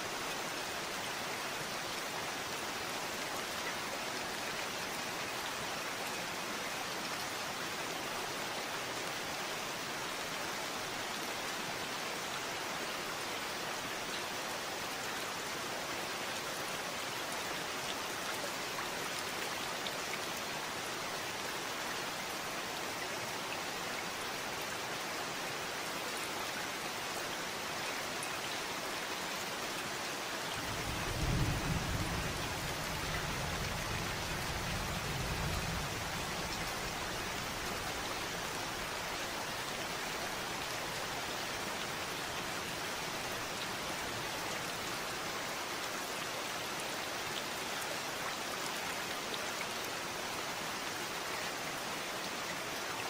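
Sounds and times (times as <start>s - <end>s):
steady rain falling: 0.0s - 53.0s
low rumble of thunder: 30.6s - 36.7s.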